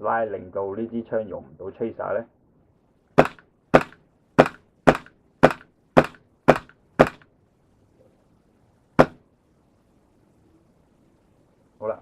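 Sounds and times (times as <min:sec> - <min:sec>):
airsoft pistol shots: 0:03.2 - 0:07.3, 0:09.0 - 0:09.2.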